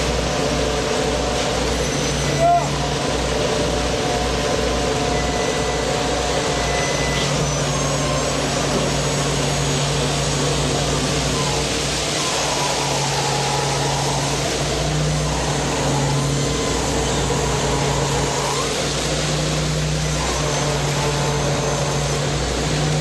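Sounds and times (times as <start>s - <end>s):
motor humming: 2.8s - 23.0s.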